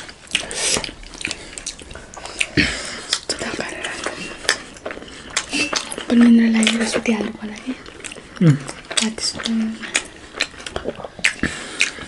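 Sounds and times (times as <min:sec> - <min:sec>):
people chewing: 0:00.0 - 0:12.0
wet mouth clicks and smacks: 0:10.0 - 0:12.0.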